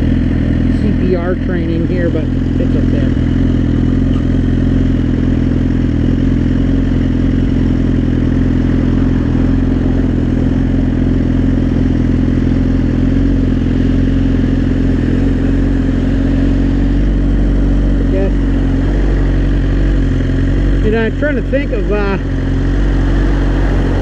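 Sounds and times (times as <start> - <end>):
motorcycle engine running: 0.0 - 24.0
road and wind noise: 0.0 - 24.0.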